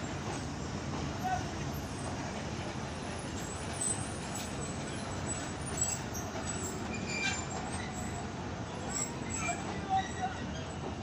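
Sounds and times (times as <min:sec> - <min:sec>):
train rumbling: 0:00.0 - 0:11.0
wheel squeaks and clinks: 0:05.7 - 0:08.2, 0:08.9 - 0:10.7.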